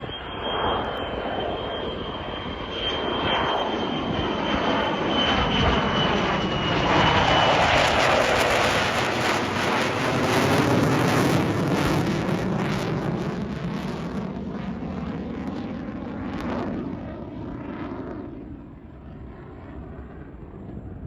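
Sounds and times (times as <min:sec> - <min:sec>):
thin high whine: 0:00.0 - 0:09.9
jet engine roar: 0:00.0 - 0:21.0.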